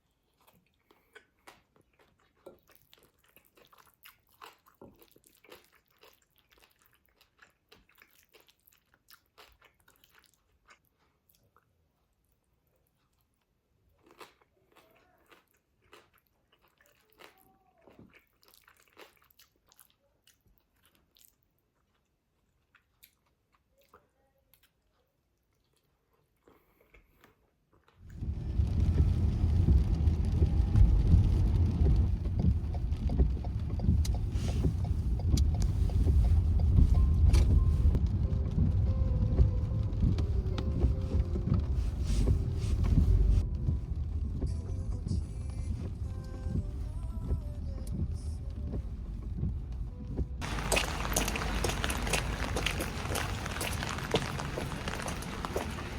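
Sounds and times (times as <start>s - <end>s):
person chewing food: 0.0s - 28.2s, 31.8s - 38.0s, 50.4s - 55.9s
loud low rumble: 28.1s - 55.9s.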